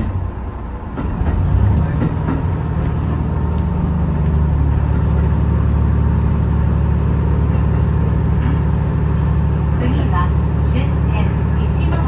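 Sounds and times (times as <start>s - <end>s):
train running with low drone: 0.0s - 12.0s.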